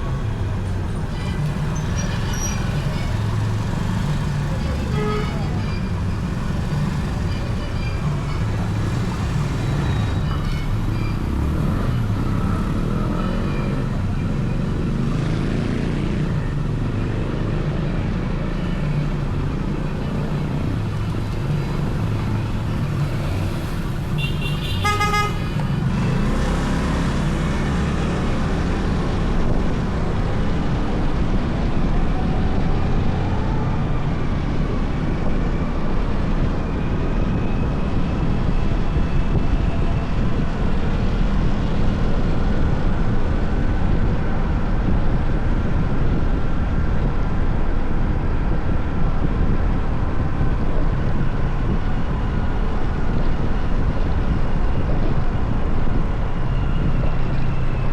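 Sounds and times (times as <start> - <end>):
road noise: 0.0 - 57.9
wind: 0.0 - 57.9
vehicle horn honking: 4.8 - 5.9, 24.2 - 25.6.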